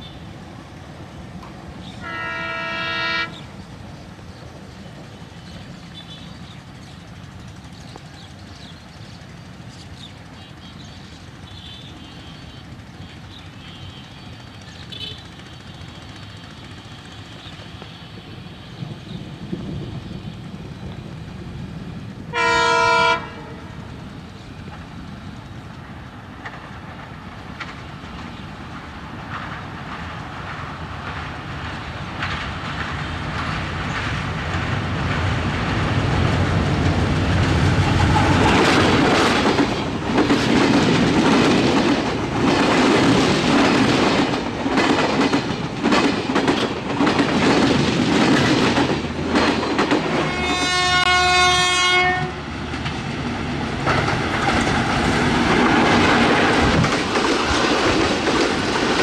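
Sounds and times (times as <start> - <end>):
train rumbling over bridge: 0.0 - 59.0
train horn blast: 1.8 - 3.4, 22.3 - 23.8, 50.1 - 52.4
wheels clacking over rail joints: 24.4 - 59.0.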